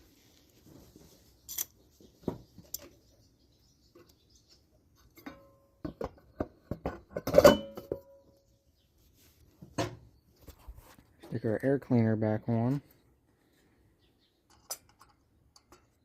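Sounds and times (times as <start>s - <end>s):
metal tools clinking: 1.4s - 1.8s.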